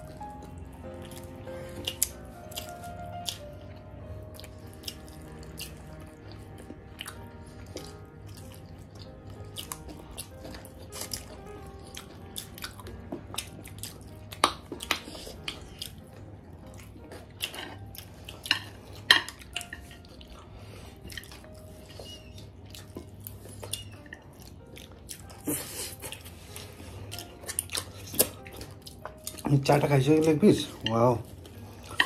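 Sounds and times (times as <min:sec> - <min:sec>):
people chewing with mouth smacks: 0:00.0 - 0:32.0
soft background music: 0:00.0 - 0:32.0.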